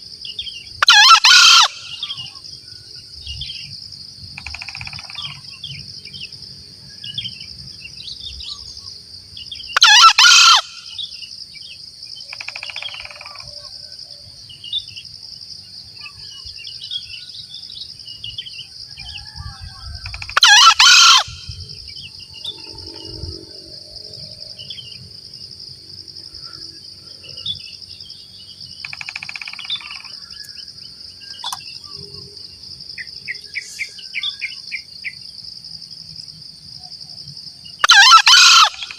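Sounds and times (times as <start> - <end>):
high insect drone: 0.0 - 38.9
faint bird calls: 0.3 - 2.5, 6.9 - 11.3, 12.2 - 15.0, 16.0 - 24.9, 28.8 - 32.4, 37.8 - 38.9
junglefowl crowing: 0.8 - 2.4, 9.8 - 11.1, 18.9 - 21.7, 37.8 - 38.9.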